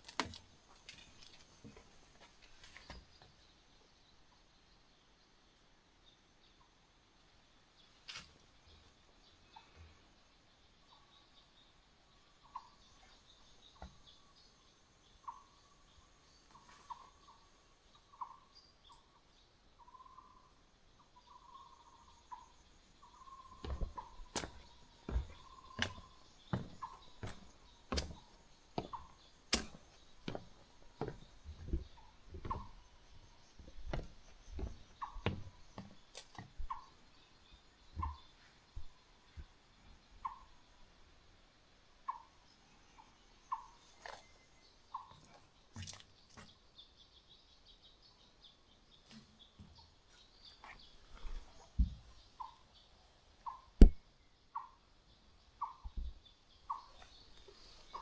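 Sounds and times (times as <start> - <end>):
footsteps crunching on trail: 23.5 - 36.8.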